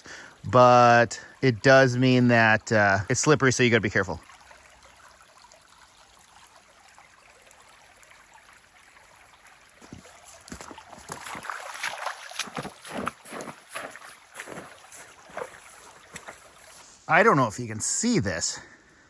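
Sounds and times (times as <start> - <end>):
stream trickling: 0.0 - 19.0
footsteps crunching through snow: 9.8 - 16.8.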